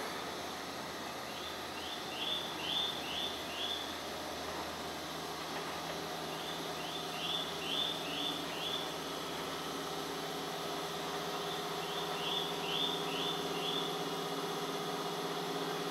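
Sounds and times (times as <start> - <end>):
bird chirping: 1.3 - 3.8, 6.3 - 8.8, 11.8 - 13.9.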